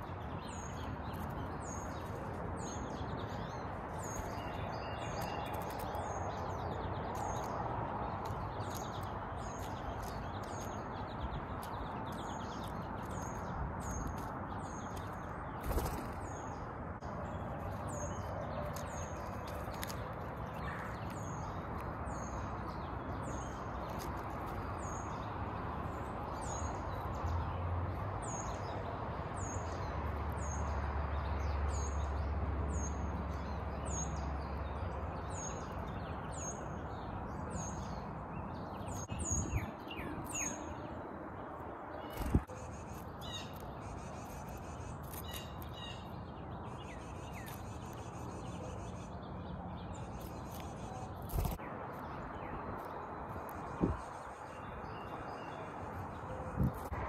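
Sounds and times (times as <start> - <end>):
birds calling: 0.0 - 27.4, 41.9 - 57.0.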